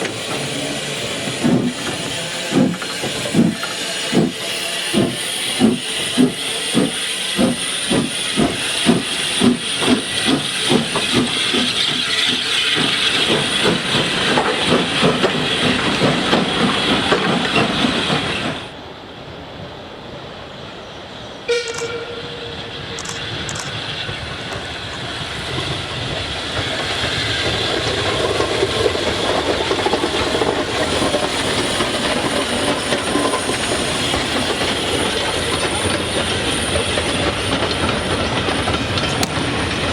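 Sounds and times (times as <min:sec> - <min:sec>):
steam locomotive exhaust beats: 0:00.0 - 0:18.7, 0:21.5 - 0:39.9
train rolling on rails: 0:00.0 - 0:39.9
train whistle: 0:21.5 - 0:22.7.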